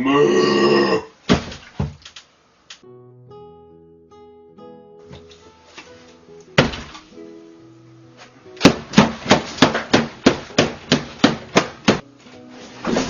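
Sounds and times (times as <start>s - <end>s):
background music: 2.8s - 13.0s
loud thunk: 6.6s - 7.0s.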